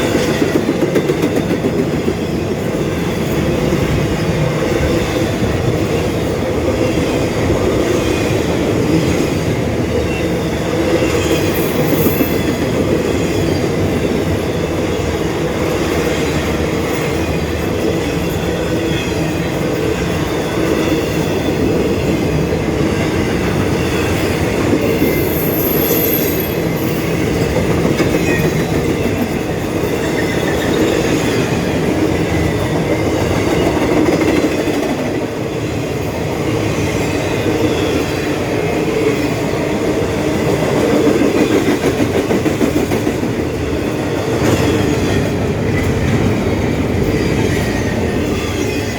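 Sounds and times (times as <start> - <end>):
freight train rolling past: 0.0 - 48.9
high wheel squeal: 24.8 - 27.2.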